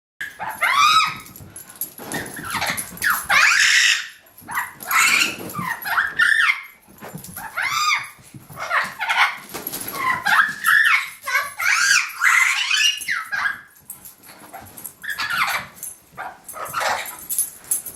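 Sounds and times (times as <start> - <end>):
puppy yipping and barking: 0.2 - 1.3, 10.0 - 13.8, 14.5 - 17.2.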